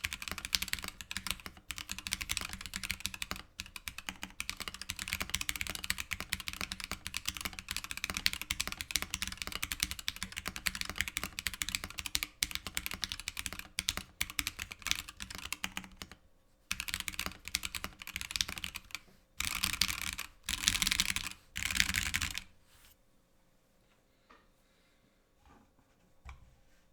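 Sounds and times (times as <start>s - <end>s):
mechanical keyboard typing: 0.0s - 22.5s.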